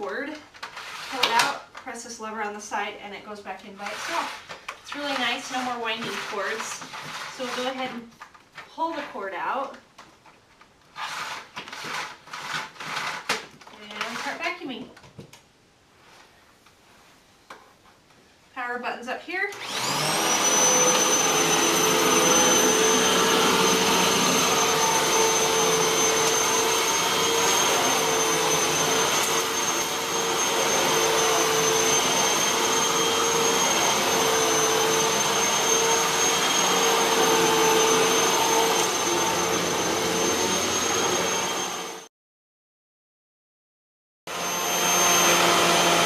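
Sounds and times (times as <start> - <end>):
vacuum cleaner running: 3.8 - 8.0, 19.5 - 42.1, 44.3 - 46.0.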